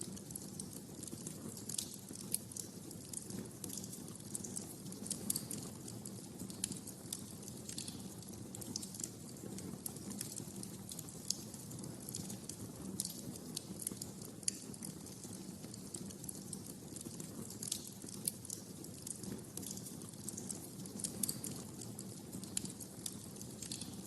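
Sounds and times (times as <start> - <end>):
fireplace fire crackling: 0.0 - 24.0.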